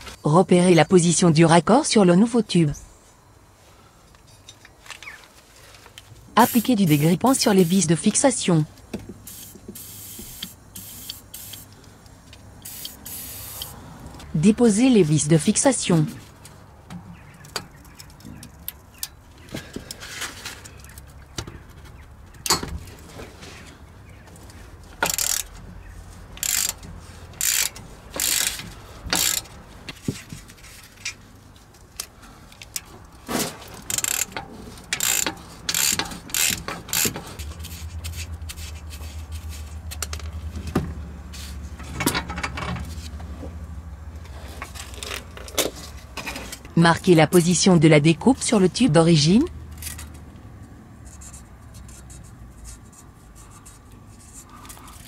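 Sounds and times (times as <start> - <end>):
ratchet wrench clicking: 9.3 - 11.8, 12.6 - 13.8, 25.0 - 25.6, 26.4 - 29.6, 33.8 - 38.8.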